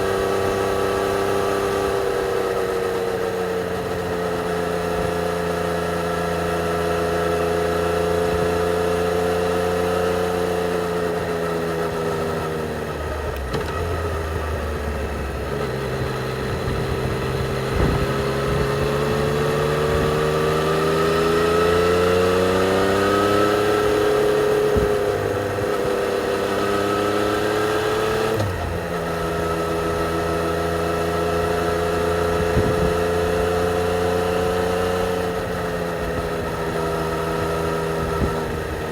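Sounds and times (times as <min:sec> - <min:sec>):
motorcycle engine accelerating: 0:00.0 - 0:38.9
motorcycle gear change: 0:10.8 - 0:30.0.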